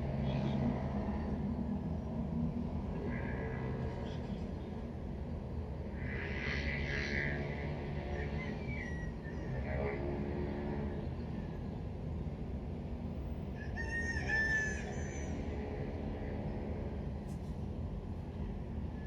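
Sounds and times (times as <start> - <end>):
rooster crowing: 13.6 - 15.4.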